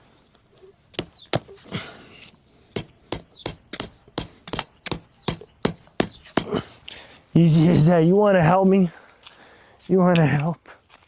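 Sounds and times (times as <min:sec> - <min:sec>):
hammer on metal tent stake: 0:01.0 - 0:01.7, 0:02.7 - 0:06.9.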